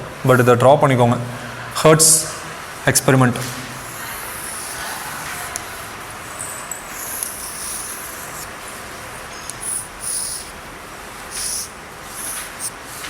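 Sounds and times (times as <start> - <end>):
marker scratching on board: 3.8 - 5.8, 6.9 - 8.6, 9.2 - 10.6, 11.3 - 12.8.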